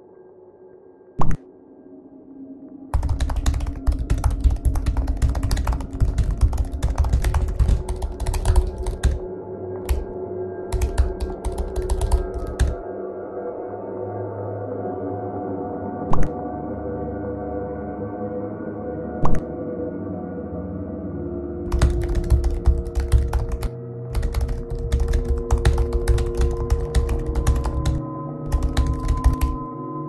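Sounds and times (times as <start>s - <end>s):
computer keyboard typing: 2.9s - 9.2s, 9.8s - 10.1s, 10.7s - 12.8s, 21.7s - 29.6s.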